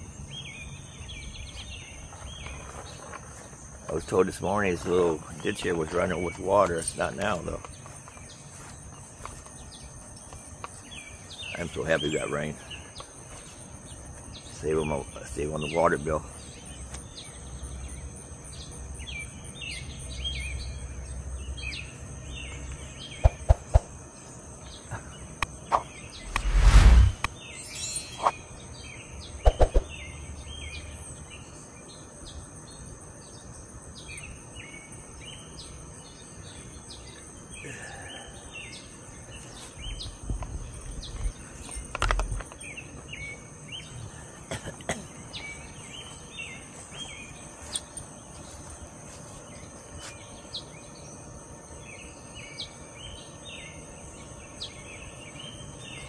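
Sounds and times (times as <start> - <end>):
small birds chirping: 0.0 - 56.0
brief rush: 26.2 - 28.3
high-pitched insect drone: 27.1 - 28.6.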